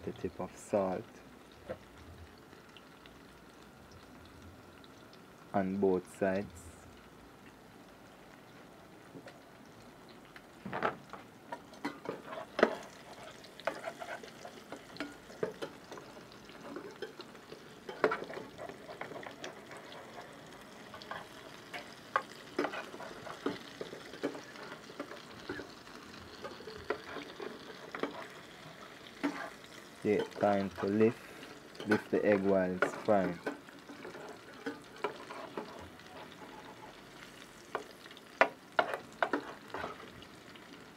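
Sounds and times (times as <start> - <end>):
egg sizzling in a pan: 0.0 - 40.9
spatula scraping and tapping pan: 10.7 - 37.0, 37.6 - 40.1.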